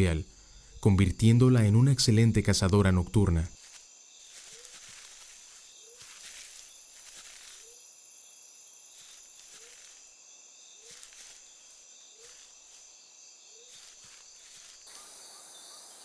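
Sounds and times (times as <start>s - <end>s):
crickets trilling: 0.0s - 16.0s
faint rustles: 3.6s - 7.8s, 13.6s - 15.1s.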